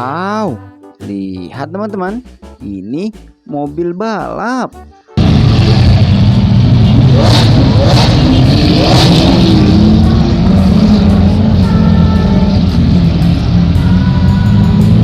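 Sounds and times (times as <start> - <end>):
race car engine revving: 5.2 - 15.0.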